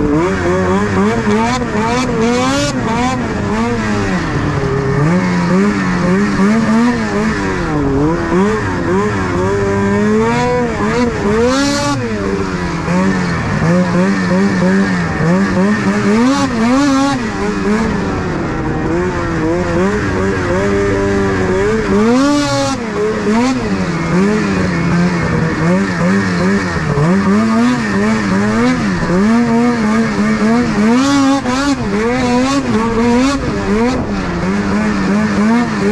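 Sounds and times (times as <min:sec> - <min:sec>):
snowmobile engine revving: 0:00.0 - 0:35.9.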